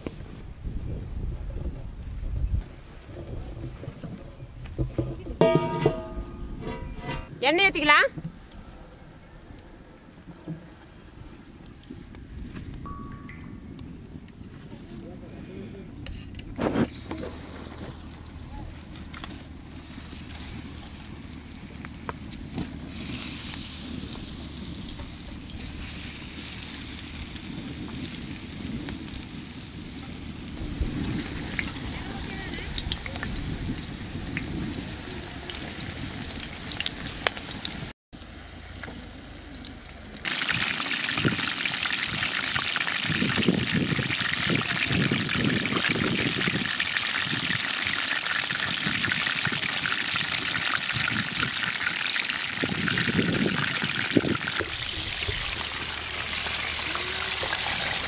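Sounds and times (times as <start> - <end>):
chicken frying in oil: 17.2 - 58.0
oil sizzling in a pan: 22.8 - 37.9, 40.3 - 58.0.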